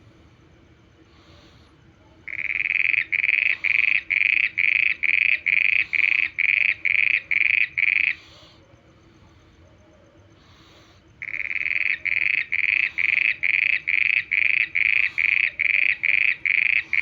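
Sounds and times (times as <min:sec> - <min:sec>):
frog croaking: 0:02.2 - 0:08.6, 0:10.4 - 0:17.0.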